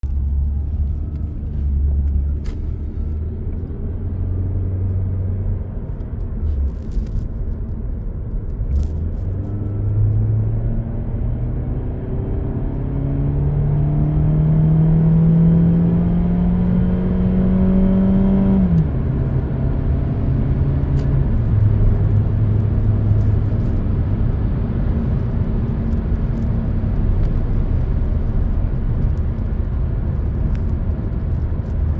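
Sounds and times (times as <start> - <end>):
car engine revving: 11.8 - 23.9.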